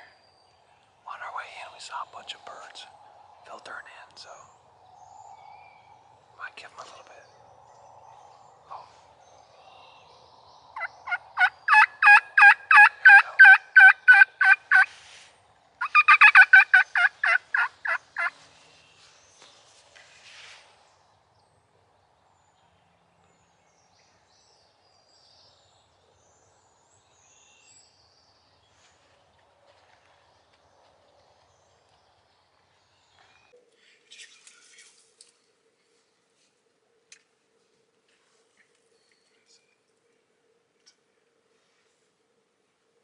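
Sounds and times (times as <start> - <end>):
turkey call yelps: 10.8 - 14.9, 15.8 - 18.3.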